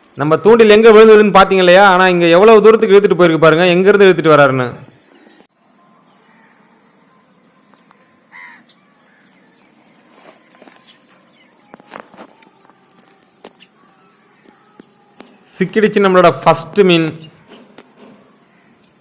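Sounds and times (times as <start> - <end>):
insects shrilling: 4.8 - 19.0.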